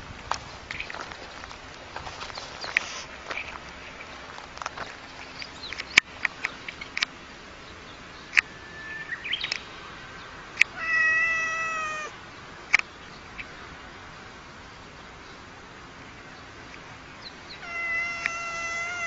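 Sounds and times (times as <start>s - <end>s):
cat meowing: 10.7s - 12.2s, 17.6s - 19.0s.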